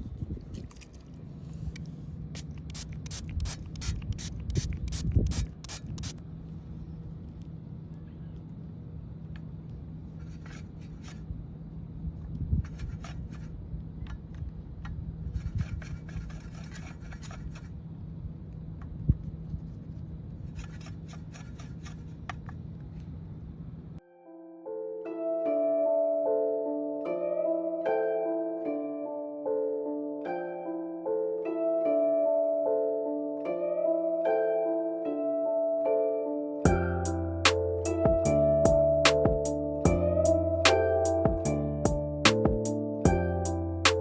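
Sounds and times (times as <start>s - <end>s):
pencil scratching on paper: 15.4s - 17.7s, 20.6s - 22.1s.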